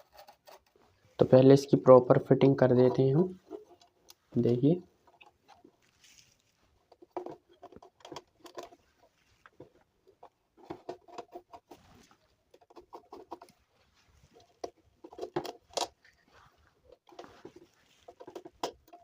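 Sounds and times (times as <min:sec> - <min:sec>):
plastic parts clicking and knocking: 0:00.0 - 0:01.3, 0:02.2 - 0:05.9, 0:06.8 - 0:13.6, 0:14.3 - 0:16.1, 0:16.8 - 0:19.0.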